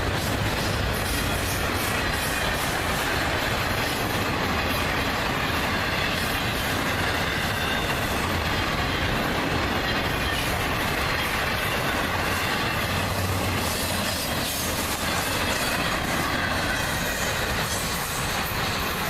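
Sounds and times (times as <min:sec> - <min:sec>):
steel wheels rumbling on rail: 0:00.0 - 0:19.0.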